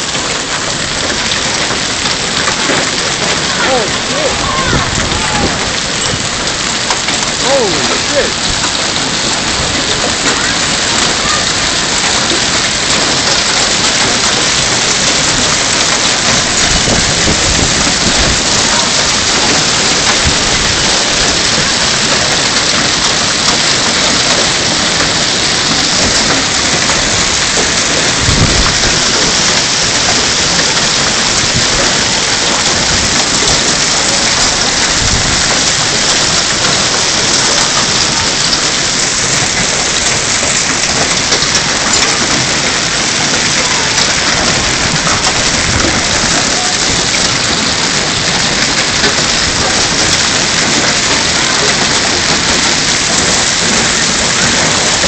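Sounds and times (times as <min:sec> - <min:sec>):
heavy rain falling: 0:00.0 - 0:55.0
low rumbles of thunder: 0:08.3 - 0:55.0.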